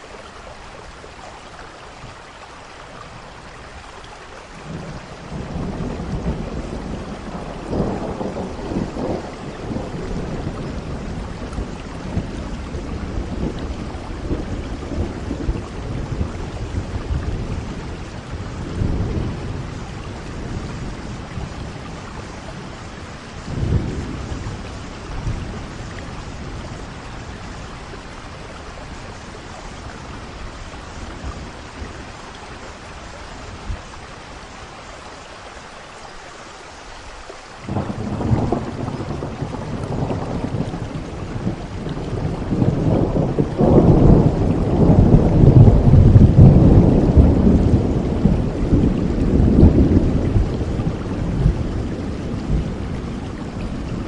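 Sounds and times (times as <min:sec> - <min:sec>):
steady rainfall: 0:00.0 - 0:54.0
rolling thunder: 0:04.6 - 0:34.3, 0:37.7 - 0:54.0
thunderclap: 0:37.7 - 0:54.0.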